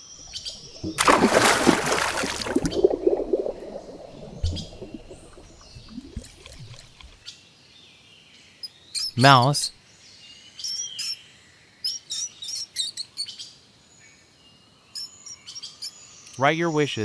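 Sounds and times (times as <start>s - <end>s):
water gurgling and bubbling: 0.0s - 7.2s
water splashing and churning: 0.0s - 7.2s
faint clicks: 2.6s - 7.2s.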